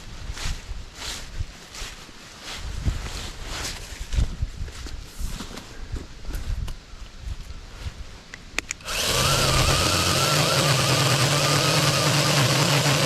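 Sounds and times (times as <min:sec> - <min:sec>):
electric chainsaw running: 0:08.8 - 0:13.0.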